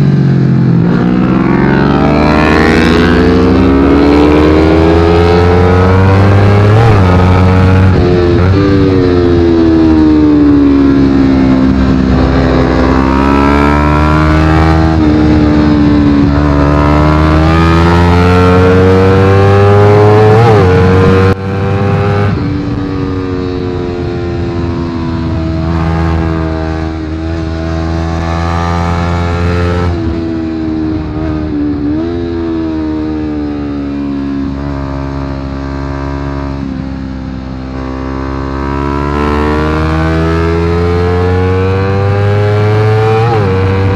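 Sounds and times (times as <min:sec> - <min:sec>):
motorbike engine revving high: 0:00.0 - 0:43.9.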